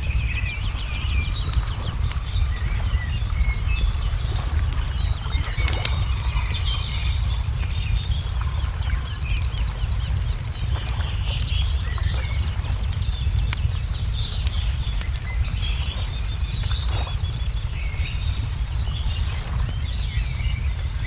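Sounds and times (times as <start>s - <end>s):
low rumble: 0.0s - 21.0s
small birds chirping: 0.0s - 21.0s
wood fire crackling: 0.0s - 21.0s.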